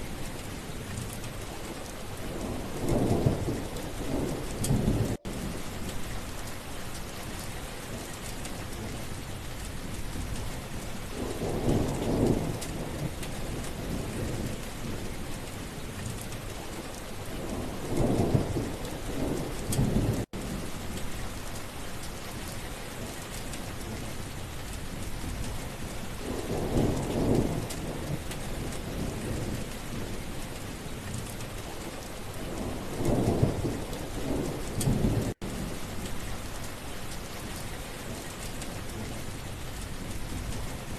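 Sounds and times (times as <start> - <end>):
steady rain falling: 0.0 - 40.9
low thunder rumbling: 2.2 - 6.6, 10.0 - 15.7, 17.2 - 21.5, 24.9 - 36.7.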